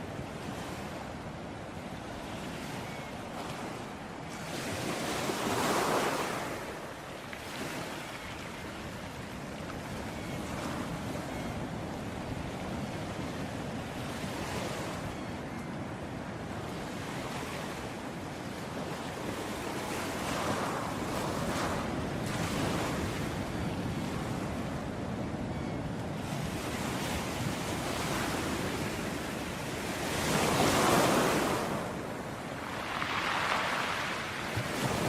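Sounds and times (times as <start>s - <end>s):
ocean waves breaking on beach: 0.0s - 35.0s
wind noise: 8.7s - 35.0s.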